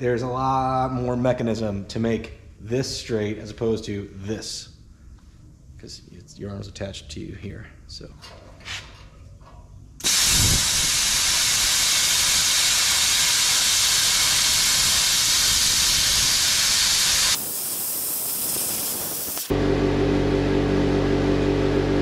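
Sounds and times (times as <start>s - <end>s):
plasma cutter hissing: 10.0s - 19.5s.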